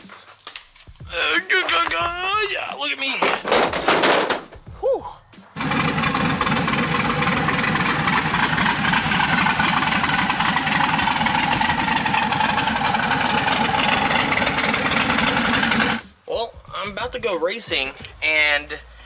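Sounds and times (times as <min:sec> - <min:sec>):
car engine running: 0:05.6 - 0:16.1.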